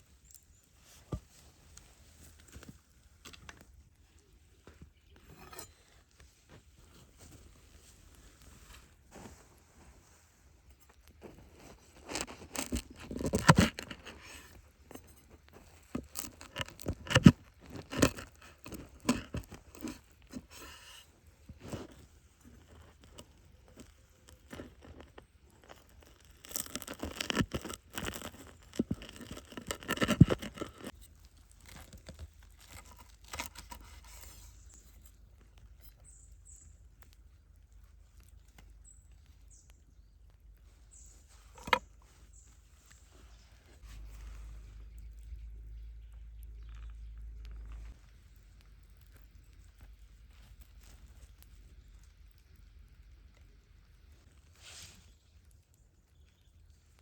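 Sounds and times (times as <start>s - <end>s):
handling scrapes and taps: 0.2s - 39.8s, 40.6s - 44.7s
tearing: 11.2s - 35.9s.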